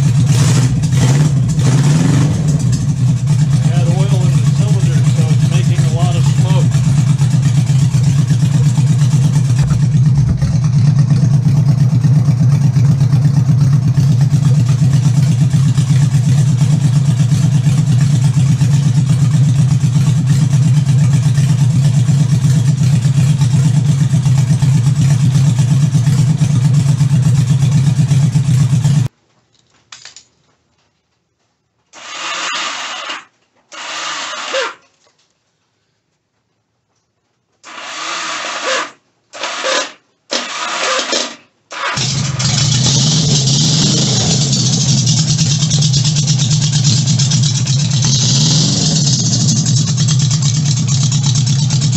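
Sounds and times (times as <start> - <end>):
motorcycle engine running: 0.0 - 29.1, 42.0 - 51.9
short engine bursts: 0.0 - 29.1, 37.6 - 51.9.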